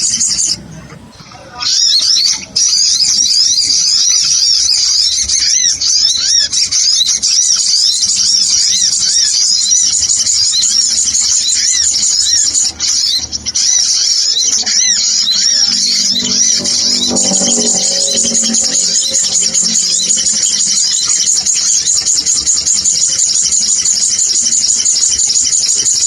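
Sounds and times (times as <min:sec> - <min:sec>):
sunbirds chirping: 0:06.5 - 0:25.8.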